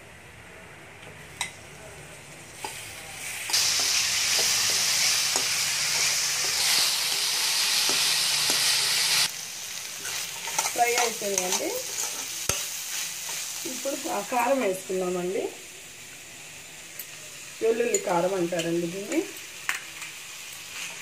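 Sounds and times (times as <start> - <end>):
beans sizzling in hot oil: 2.3 - 21.0
metal spatula scraping: 10.0 - 13.6.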